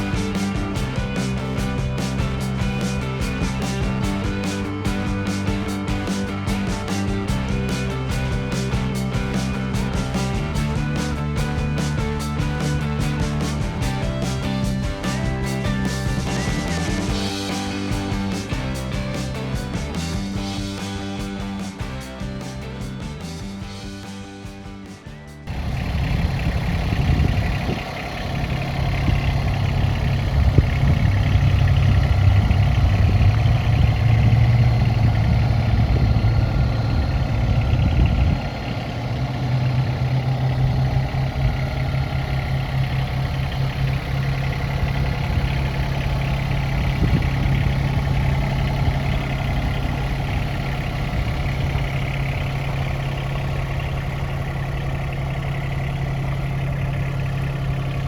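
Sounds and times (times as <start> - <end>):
diesel tractor engine running: 0.0 - 58.0.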